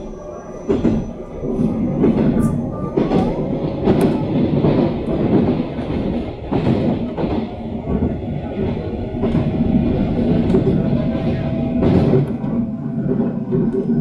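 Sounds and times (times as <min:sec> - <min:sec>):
train wheels rumbling on track: 0:00.0 - 0:14.0
train wheel clacks: 0:00.6 - 0:14.0.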